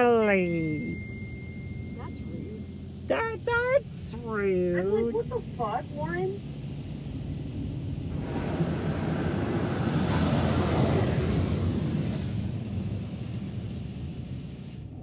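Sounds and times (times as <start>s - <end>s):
low rumble: 0.0s - 15.0s
car wash equipment rushing: 8.1s - 14.8s.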